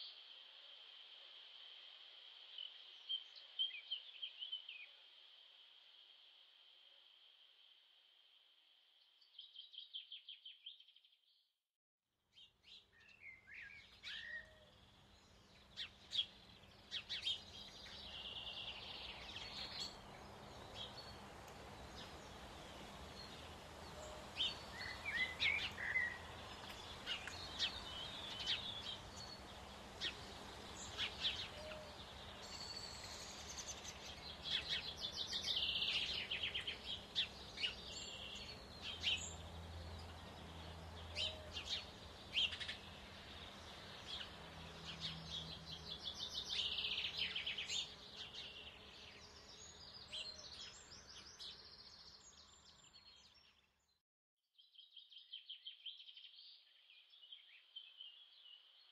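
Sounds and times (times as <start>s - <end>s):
songbirds chirping and trilling: 0.0s - 6.7s, 9.0s - 11.2s, 12.3s - 53.9s, 54.6s - 58.9s
steady background hiss: 14.8s - 48.9s.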